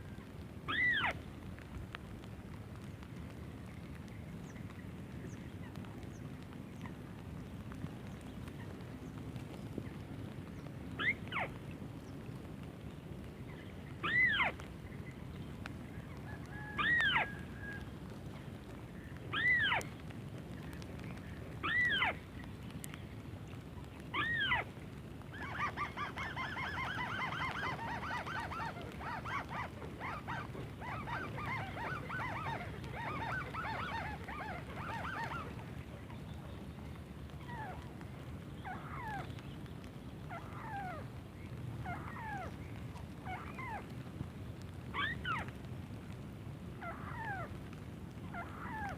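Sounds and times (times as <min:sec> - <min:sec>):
bird nasal calls: 0:25.3 - 0:36.4.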